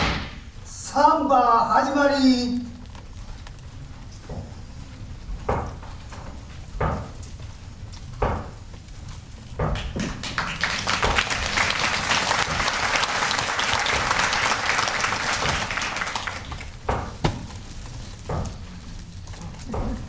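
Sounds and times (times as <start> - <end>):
audience applauding: 9.8 - 16.8.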